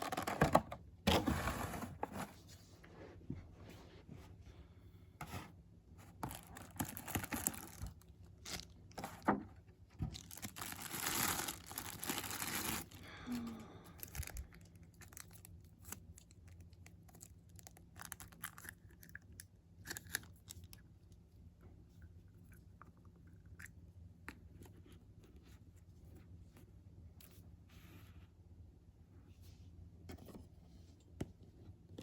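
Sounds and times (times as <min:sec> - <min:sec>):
packaging tearing and crinkling: 0:06.2 - 0:09.2, 0:10.2 - 0:13.0.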